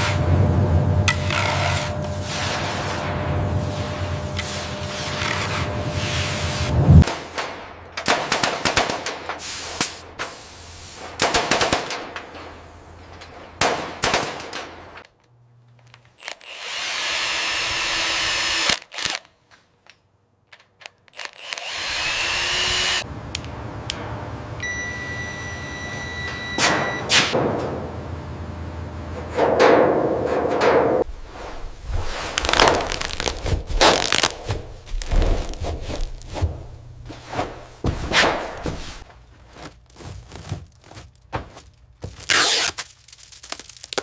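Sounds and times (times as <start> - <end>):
power tool running: 16.2 - 18.8, 21.2 - 23.0.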